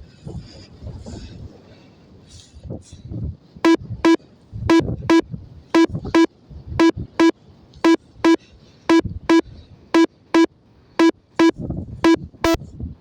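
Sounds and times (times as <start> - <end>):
short electronic beeps: 3.7 - 5.2, 5.8 - 9.4, 10.0 - 12.6.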